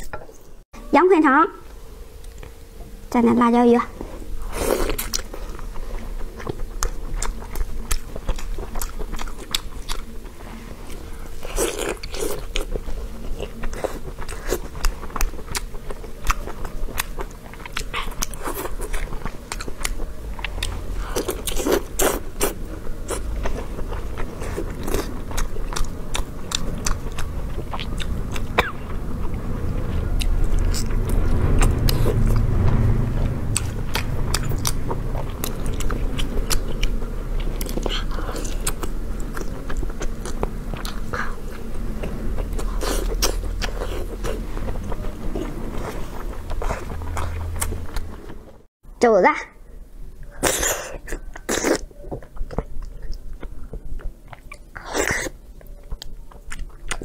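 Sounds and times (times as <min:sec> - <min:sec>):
biting and chewing: 0:04.5 - 0:48.6.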